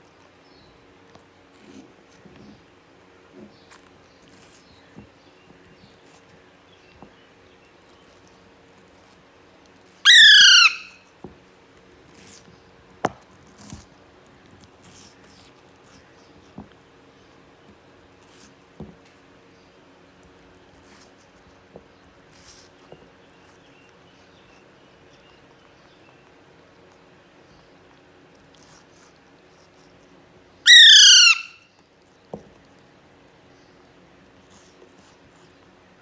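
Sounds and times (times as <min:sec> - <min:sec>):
parakeet squawking: 0:10.1 - 0:11.0, 0:30.7 - 0:31.6.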